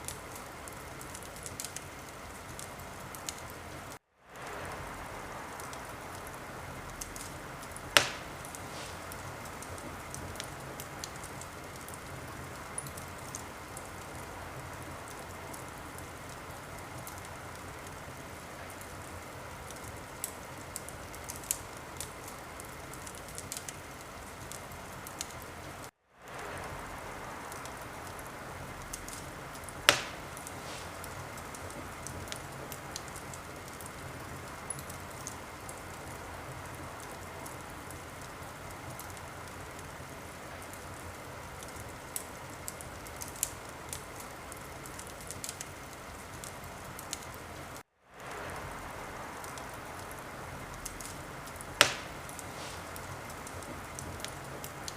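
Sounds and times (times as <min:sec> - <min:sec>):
wood fire crackling: 0:00.0 - 0:54.9
loud fire pop: 0:07.9 - 0:10.5, 0:28.9 - 0:32.4, 0:51.8 - 0:53.2.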